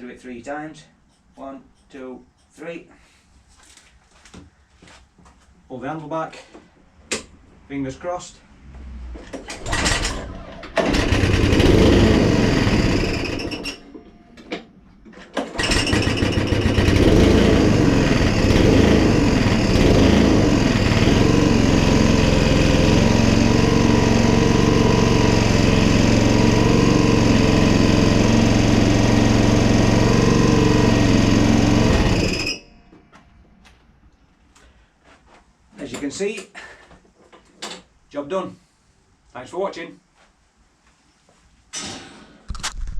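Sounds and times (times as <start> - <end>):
lawnmower engine running: 9.6 - 13.8, 15.4 - 32.6.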